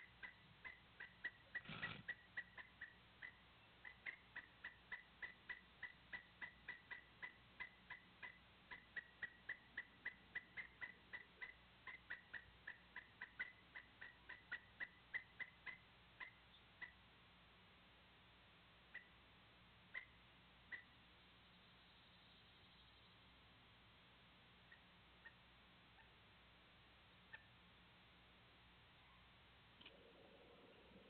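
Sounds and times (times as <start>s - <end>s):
small animal chip calls: 0.0s - 17.0s, 18.9s - 19.2s, 19.9s - 21.0s, 24.6s - 26.2s, 27.2s - 27.6s.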